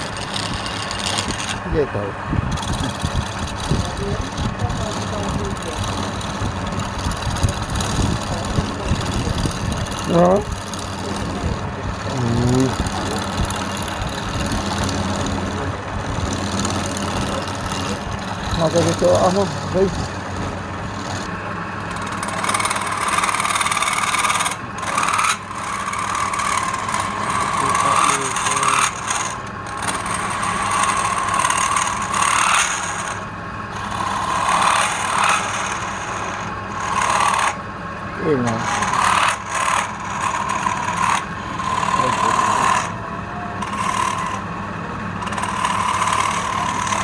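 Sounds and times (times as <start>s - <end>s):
lathe motor humming: 0.0s - 47.0s
tool cutting spinning wood: 0.0s - 47.0s
short pitched voice-like sound: 12.1s - 12.7s.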